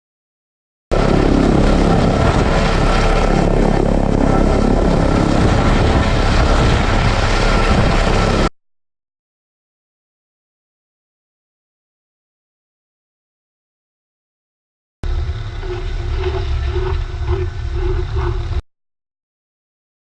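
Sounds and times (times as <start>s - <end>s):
helicopter running: 0.9s - 8.5s, 15.0s - 18.6s.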